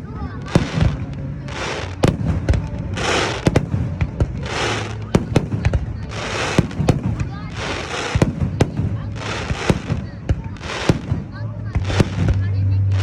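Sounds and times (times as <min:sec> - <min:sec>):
fireworks hissing: 0:00.0 - 0:13.0
fireworks shells bursting: 0:00.4 - 0:12.6.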